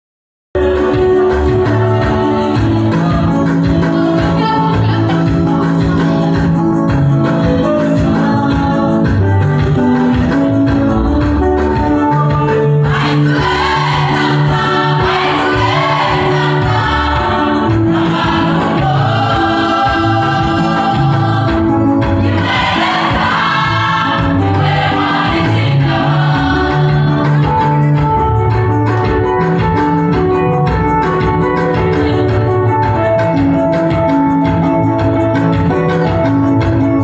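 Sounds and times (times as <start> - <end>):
bass and keyboard accompaniment: 0.6 - 37.0
choir singing gospel music: 0.6 - 37.0.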